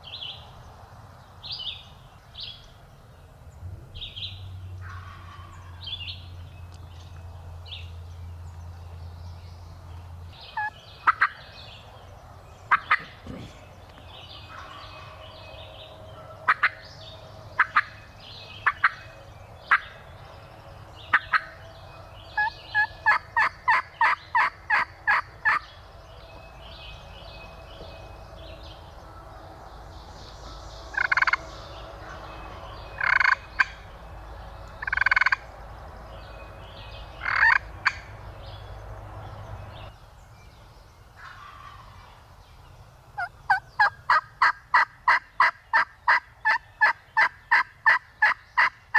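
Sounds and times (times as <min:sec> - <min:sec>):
turkey yelping: 0:10.6 - 0:11.4, 0:12.7 - 0:13.5, 0:16.2 - 0:16.8, 0:17.6 - 0:18.0, 0:22.4 - 0:25.6, 0:37.2 - 0:38.1.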